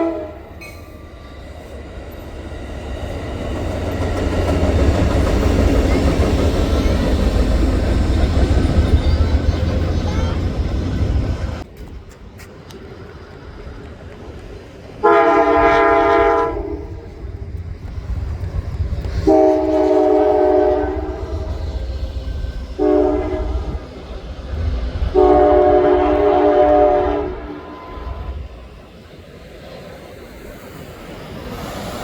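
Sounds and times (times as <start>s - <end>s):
locomotive horn blasts: 0.0s - 0.8s, 15.0s - 17.1s, 19.2s - 21.6s, 22.8s - 23.8s, 25.1s - 28.4s.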